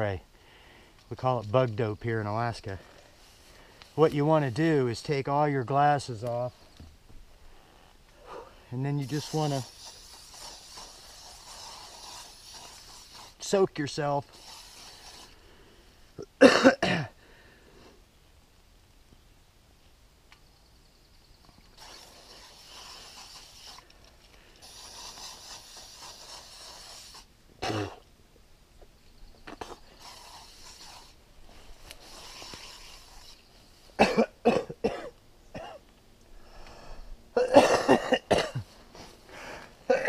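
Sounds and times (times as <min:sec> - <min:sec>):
aerosol spray hissing: 0:08.9 - 0:15.4, 0:21.8 - 0:23.9, 0:24.5 - 0:27.3, 0:29.6 - 0:34.0
person coughing: 0:16.4 - 0:17.2, 0:27.6 - 0:28.0, 0:34.0 - 0:35.8, 0:37.4 - 0:38.7.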